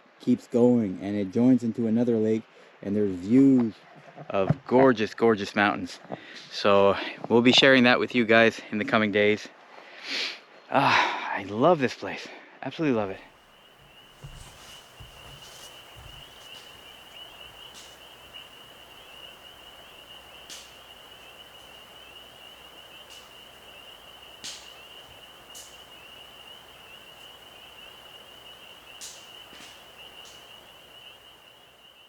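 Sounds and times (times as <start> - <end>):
faint hiss: 12.8 - 32.0.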